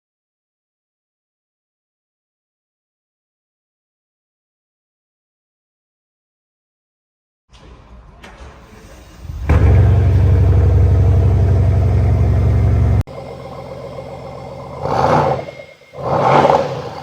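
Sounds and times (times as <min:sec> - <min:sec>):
car engine revving: 0:09.2 - 0:17.0.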